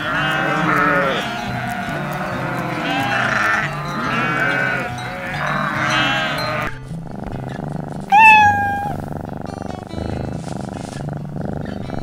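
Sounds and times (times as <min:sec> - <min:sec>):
goats bleating: 0:00.0 - 0:06.8, 0:08.1 - 0:09.0
background music: 0:00.0 - 0:10.9
kitten meowing: 0:08.1 - 0:09.1.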